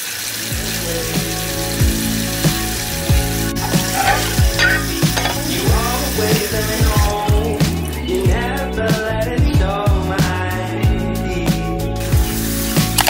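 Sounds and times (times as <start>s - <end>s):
food sizzling in a pan: 0.0s - 8.3s, 12.0s - 13.0s
background music with a beat: 0.4s - 13.0s.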